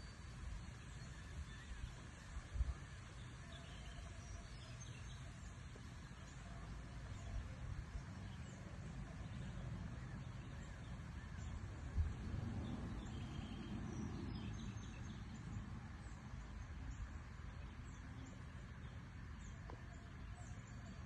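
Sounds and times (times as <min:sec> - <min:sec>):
steady low rumble: 0:06.2 - 0:21.0.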